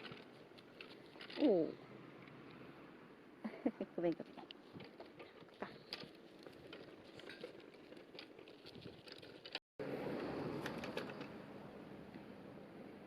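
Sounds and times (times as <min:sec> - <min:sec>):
wheelchair clicks on ground: 0:00.0 - 0:01.8, 0:04.1 - 0:09.6, 0:10.2 - 0:11.4.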